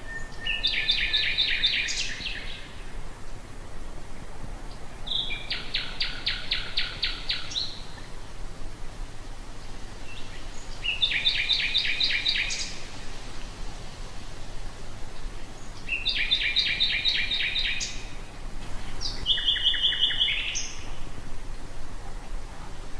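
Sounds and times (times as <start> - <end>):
nightingale singing: 0.0 - 3.0, 4.7 - 8.1, 10.0 - 13.0, 15.4 - 21.0
low background noise: 0.0 - 22.9.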